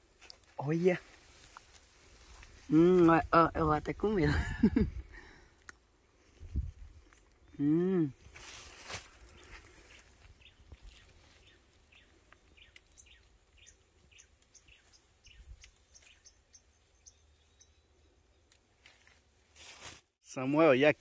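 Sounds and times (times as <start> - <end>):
bird chirping: 10.3 - 18.6.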